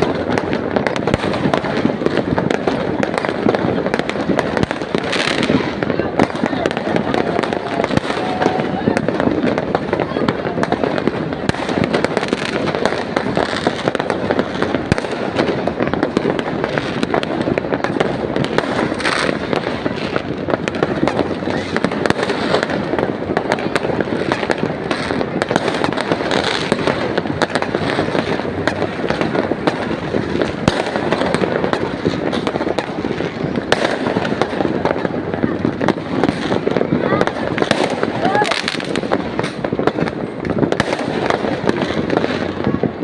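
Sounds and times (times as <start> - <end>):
fireworks bangs and crackles: 0.0 - 43.0.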